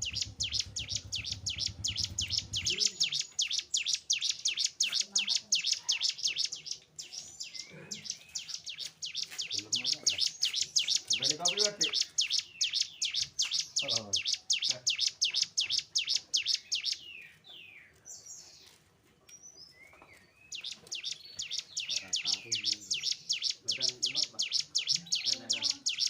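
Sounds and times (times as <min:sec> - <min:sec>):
bird chirping rapidly: 0:00.0 - 0:18.4, 0:19.5 - 0:26.0
faint low voices: 0:04.8 - 0:08.6, 0:21.8 - 0:26.0.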